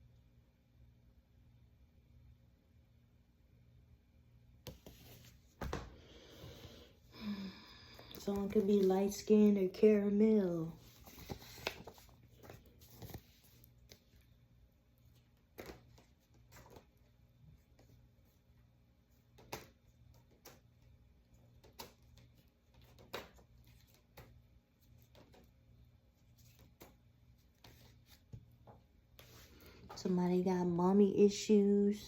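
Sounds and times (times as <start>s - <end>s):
low steady hum: 0.0s - 32.0s
faint clicks and rustles: 10.8s - 14.3s.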